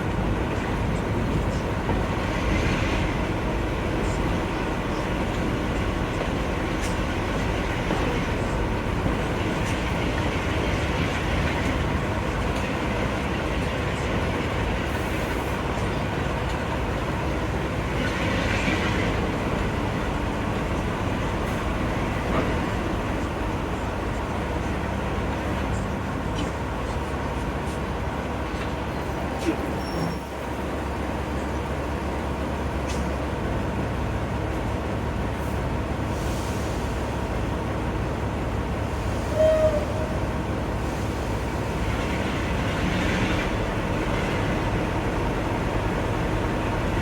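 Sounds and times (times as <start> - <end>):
train rumbling on rails: 0.0 - 47.0.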